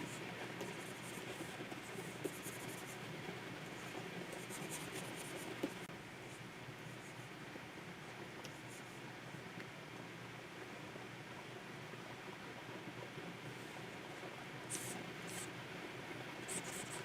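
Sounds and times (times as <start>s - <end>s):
stylus scratching on screen: 0.1s - 3.0s, 3.8s - 5.8s, 14.7s - 15.5s, 16.4s - 17.0s.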